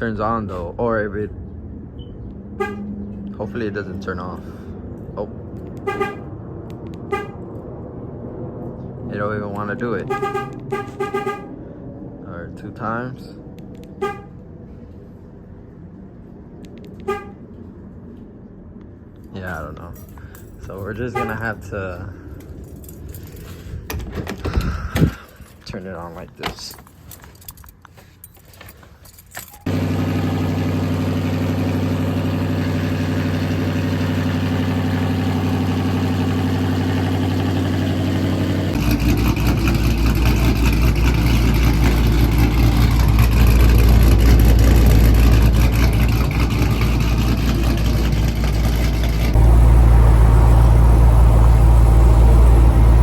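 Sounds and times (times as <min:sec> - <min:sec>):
car engine starting and idling: 0:29.4 - 0:53.0.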